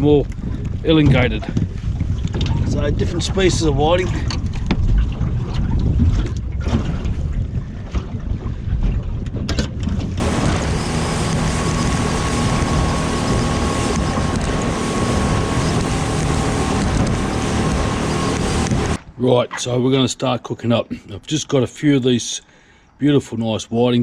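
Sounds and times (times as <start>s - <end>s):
wind buffeting microphone: 0.0s - 19.0s
boat motor running: 10.2s - 19.0s
water rushing: 10.2s - 19.0s.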